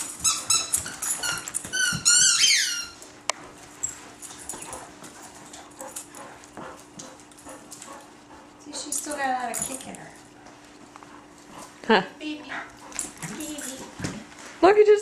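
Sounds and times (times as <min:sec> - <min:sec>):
squeaky dog toy squeaking: 0:00.1 - 0:03.0.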